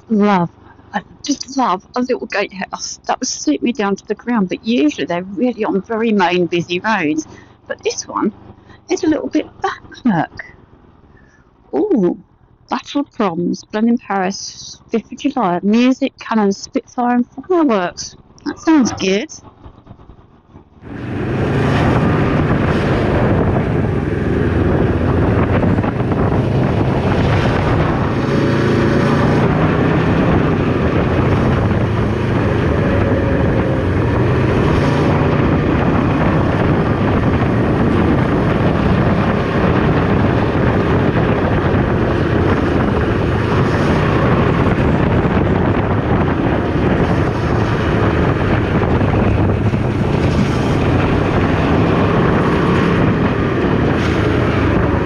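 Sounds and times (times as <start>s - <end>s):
motorcycle engine drone: 0.0s - 16.2s, 17.0s - 55.0s
wind buffeting microphone: 17.4s - 55.0s.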